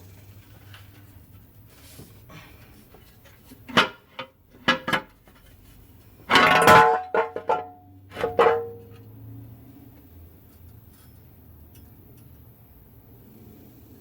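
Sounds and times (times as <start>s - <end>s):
metal tools clanking: 6.3s - 9.1s
metallic ringing: 6.3s - 9.1s.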